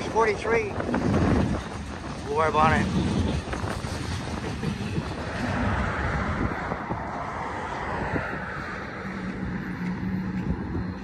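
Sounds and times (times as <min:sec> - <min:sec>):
freight train rolling past: 0:00.0 - 0:11.0
wind on microphone: 0:00.0 - 0:11.0
low hum: 0:03.1 - 0:11.0.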